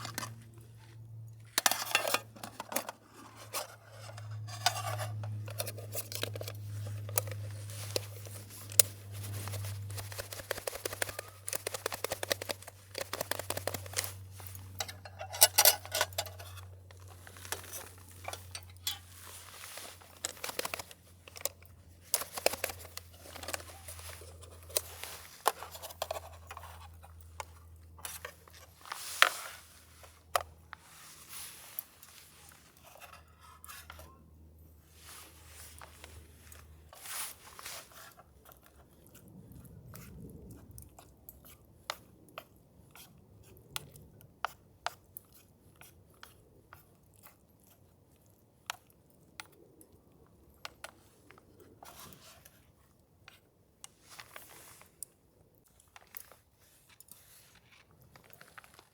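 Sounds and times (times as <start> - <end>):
small objects clicking and crinkling: 0.0 - 34.2, 53.3 - 58.9.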